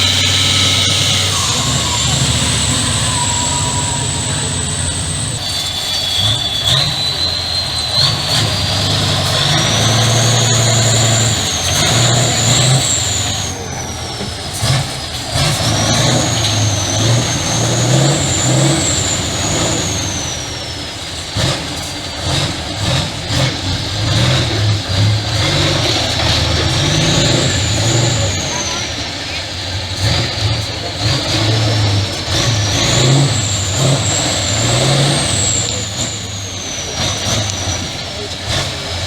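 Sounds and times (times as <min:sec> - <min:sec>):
high whine rising and falling: 0:00.0 - 0:14.2
truck engine revving: 0:00.0 - 0:39.0.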